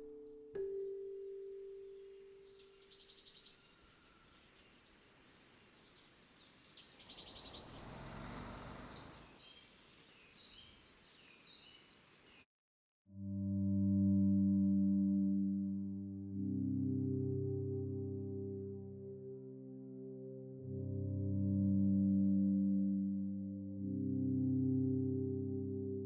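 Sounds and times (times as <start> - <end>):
small birds chirping and trilling: 2.2 - 12.5
rushing swell: 7.0 - 9.4.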